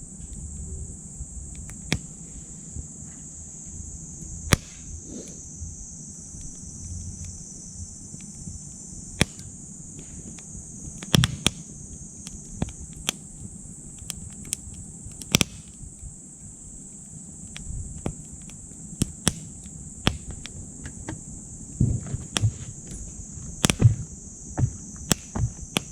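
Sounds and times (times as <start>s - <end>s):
insects chirring: 0.0s - 25.9s
wood fire crackling and popping: 1.3s - 2.3s, 4.5s - 5.0s, 6.4s - 16.1s, 16.7s - 25.9s.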